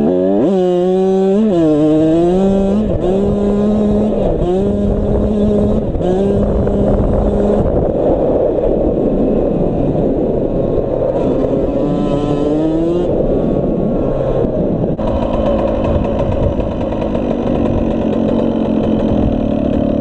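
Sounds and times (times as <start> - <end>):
dirt bike engine revving: 0.0 - 7.8, 11.2 - 13.2, 14.9 - 20.0.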